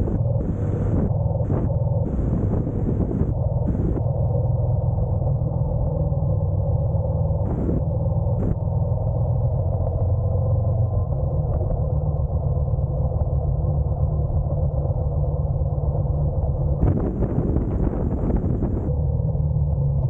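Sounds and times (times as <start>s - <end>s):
motorcycle engine running: 0.0s - 4.0s
wind on microphone: 0.0s - 20.0s.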